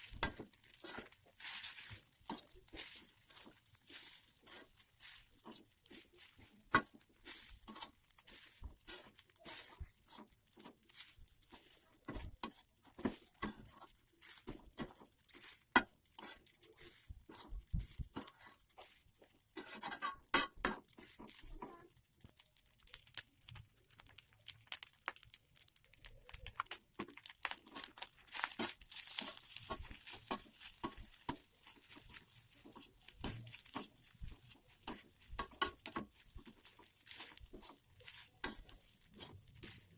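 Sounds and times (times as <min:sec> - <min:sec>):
kitchen utensils clicking and knocking: 0:27.7 - 0:39.9.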